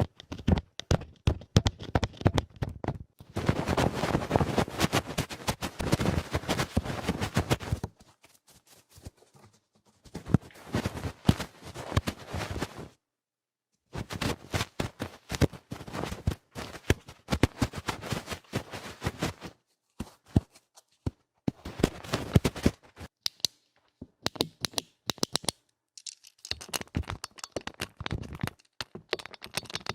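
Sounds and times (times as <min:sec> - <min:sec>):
scratching and scraping at ear: 0:03.3 - 0:07.8, 0:10.0 - 0:12.9.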